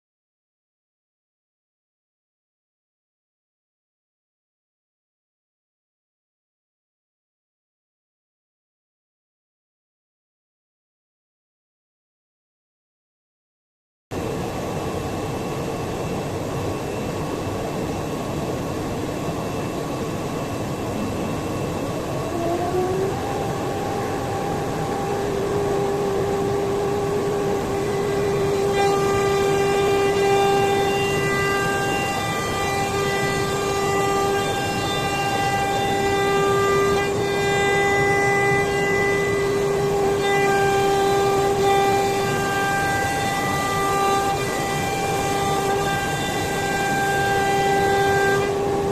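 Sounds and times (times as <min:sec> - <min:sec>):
router spindle whine: 0:14.2 - 0:48.9.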